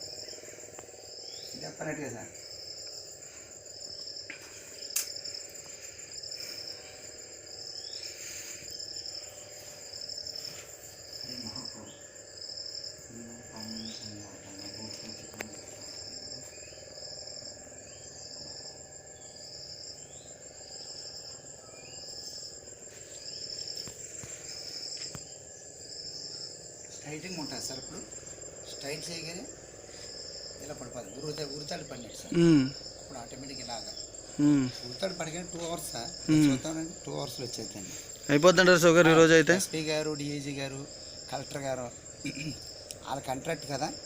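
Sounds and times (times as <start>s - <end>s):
continuous high insect trill: 0.0s - 44.0s
insect chirping: 0.0s - 44.0s
sharp click: 4.9s - 5.2s.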